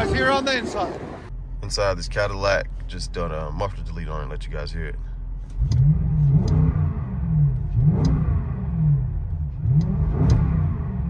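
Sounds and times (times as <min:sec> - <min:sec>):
car engine revving: 0:05.3 - 0:11.0.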